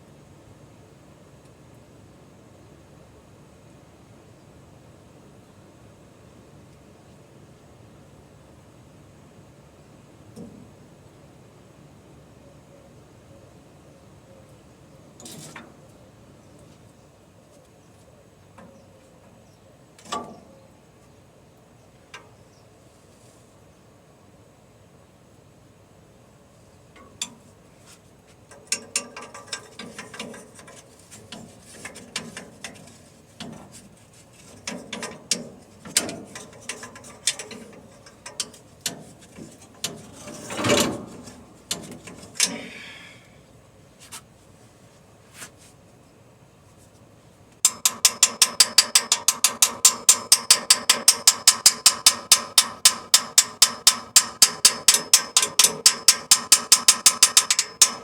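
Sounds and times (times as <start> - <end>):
knocks and clicks of handled parts: 28.4 - 42.7, 47.6 - 58.0.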